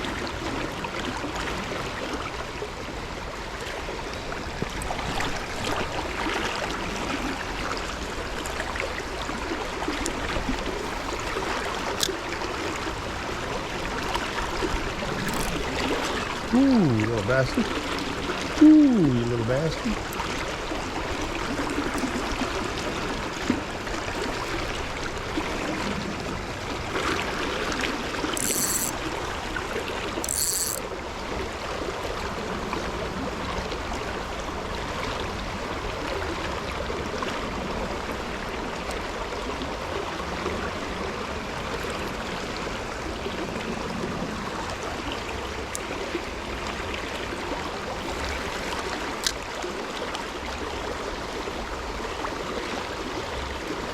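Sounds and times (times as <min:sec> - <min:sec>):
stream water rushing: 0:00.0 - 0:53.9
high-pitched rasps: 0:28.4 - 0:29.0.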